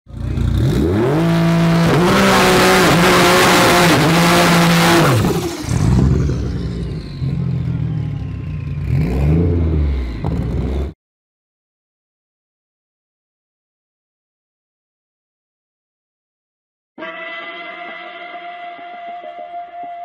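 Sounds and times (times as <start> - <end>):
car engine revving: 0.1 - 11.0.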